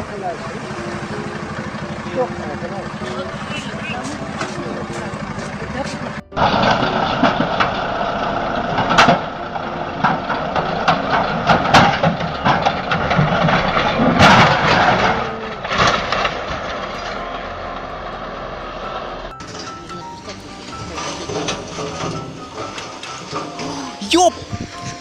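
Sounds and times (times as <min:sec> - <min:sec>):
truck engine running: 0:00.0 - 0:25.0
knocks and rattles: 0:10.0 - 0:16.8.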